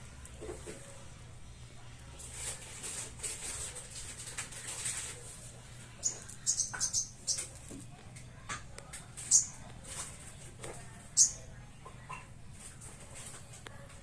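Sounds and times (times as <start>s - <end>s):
soft scratchy rustling: 2.2s - 6.0s, 8.9s - 11.1s, 12.4s - 14.0s
bird chirping high and thin: 6.0s - 7.4s.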